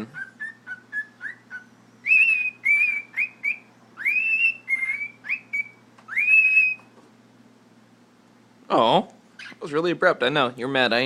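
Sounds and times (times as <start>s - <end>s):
cockatiel whistling: 0.0s - 6.9s.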